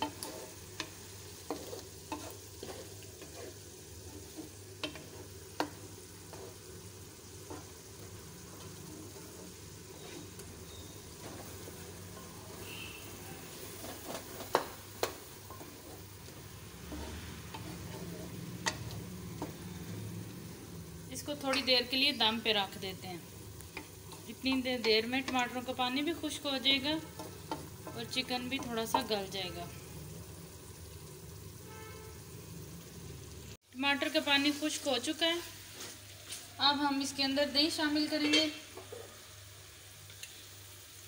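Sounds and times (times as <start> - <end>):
spatula scraping and knocking pan: 0.0 - 12.9, 13.6 - 19.8, 23.7 - 29.2
chicken and tomatoes sizzling: 0.0 - 41.0.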